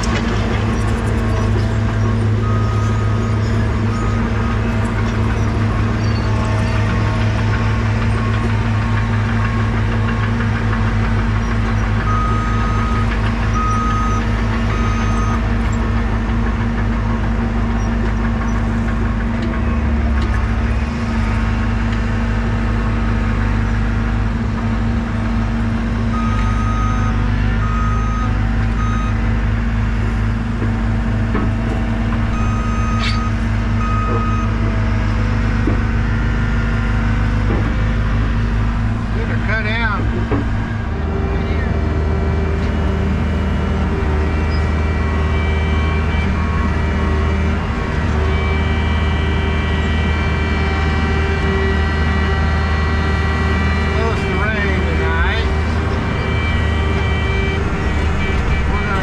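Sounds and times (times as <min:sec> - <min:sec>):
heavy diesel engine running: 0:00.0 - 0:59.0
backup alarm beeping: 0:53.8 - 0:59.0.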